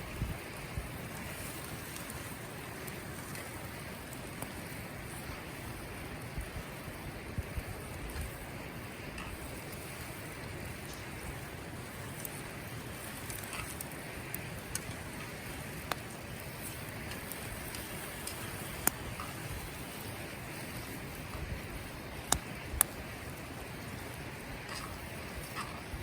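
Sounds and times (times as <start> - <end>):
campfire crackling: 0.0 - 26.0.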